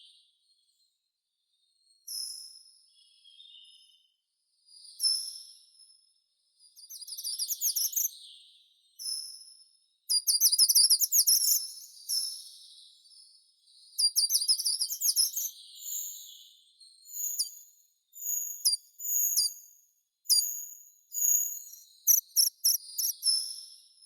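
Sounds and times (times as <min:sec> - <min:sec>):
songbird singing: 0:06.8 - 0:08.1, 0:10.1 - 0:13.0, 0:14.0 - 0:19.5, 0:21.1 - 0:23.6.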